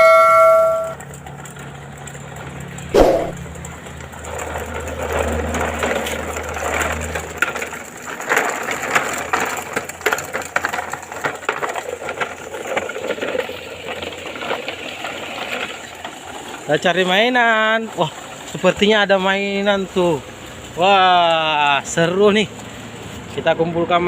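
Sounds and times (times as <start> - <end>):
toy truck clattering: 3.7 - 18.4.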